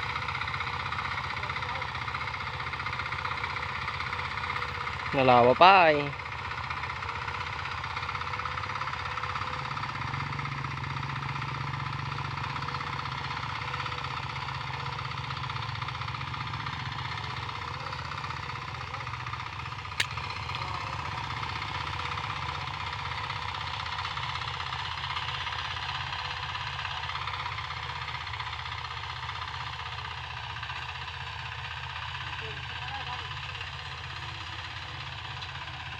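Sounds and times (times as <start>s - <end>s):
hand tractor engine running: 0.0s - 35.9s
sharp click: 20.0s - 20.2s.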